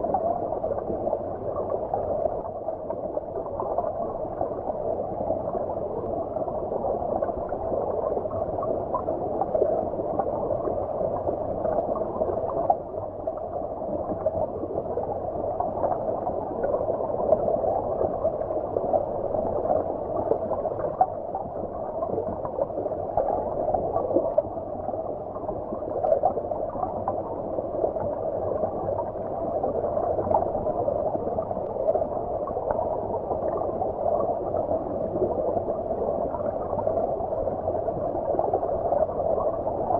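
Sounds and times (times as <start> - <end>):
stream heard underwater: 0.0 - 39.9.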